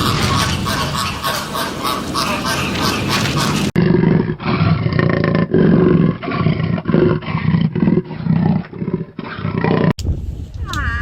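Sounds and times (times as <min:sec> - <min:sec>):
farm animal calling loudly: 0:00.0 - 0:03.8.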